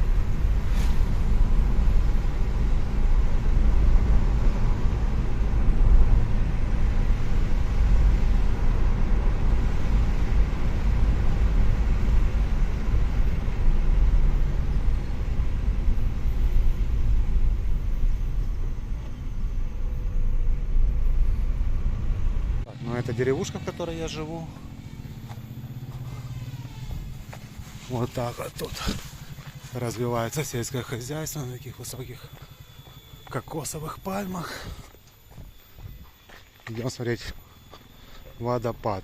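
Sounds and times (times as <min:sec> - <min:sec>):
road vehicle rumble: 0:00.0 - 0:39.0.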